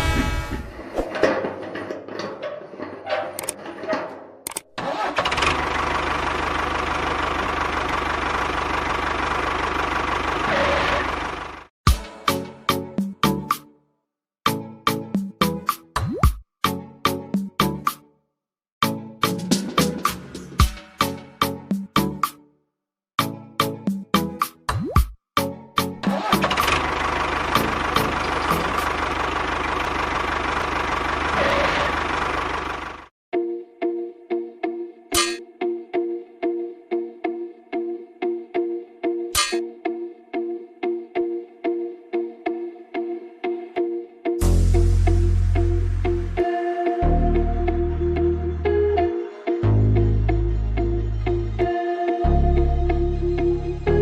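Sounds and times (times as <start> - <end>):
tractor engine idling: 4.9 - 11.7, 26.3 - 33.1.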